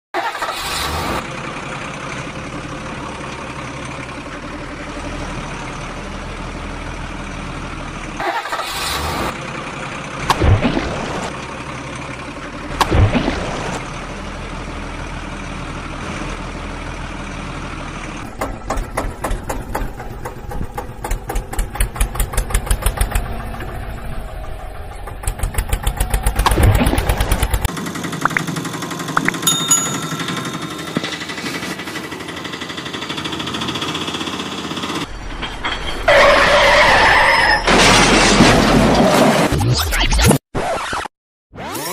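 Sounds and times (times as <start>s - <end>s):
motor engine running: 17.4s - 35.1s.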